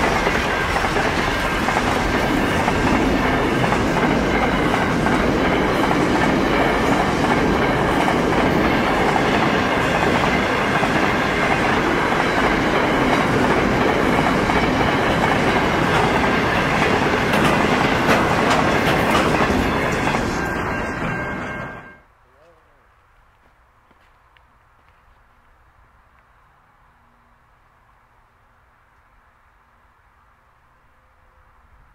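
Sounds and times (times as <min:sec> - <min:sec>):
wheels clacking on track: 0:00.0 - 0:22.0
freight train rolling past: 0:00.0 - 0:22.1.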